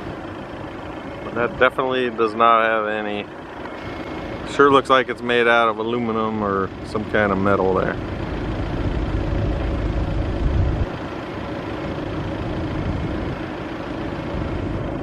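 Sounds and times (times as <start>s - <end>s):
vehicle engine idling: 0.0s - 15.0s
heavier low rumble: 7.8s - 15.0s.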